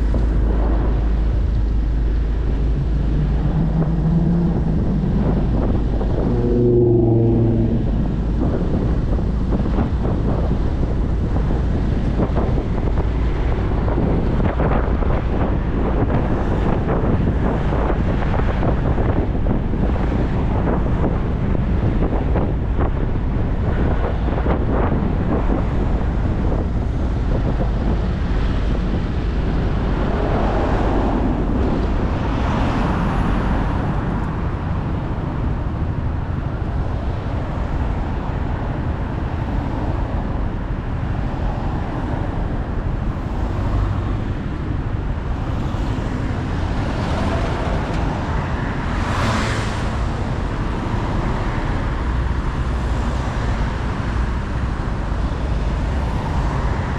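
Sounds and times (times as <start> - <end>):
vehicles passing: 0.0 - 56.9
wind rushing over microphone: 0.0 - 56.9.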